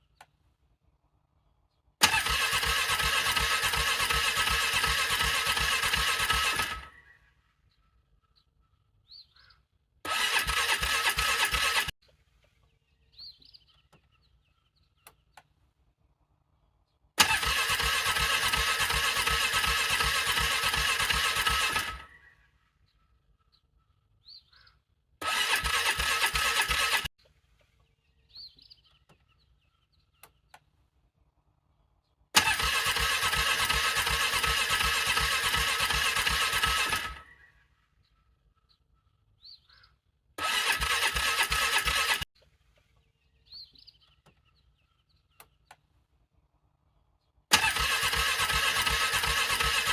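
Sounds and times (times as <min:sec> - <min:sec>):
engine cranking on electric starter: 0:02.0 - 0:07.0, 0:10.0 - 0:12.0, 0:17.2 - 0:22.2, 0:25.2 - 0:27.1, 0:32.3 - 0:37.4, 0:40.4 - 0:42.3, 0:47.5 - 0:49.9.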